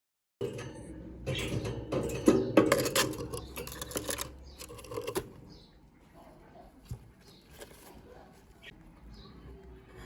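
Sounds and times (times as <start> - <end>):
chicks rustling in nest box: 5.9 - 9.6.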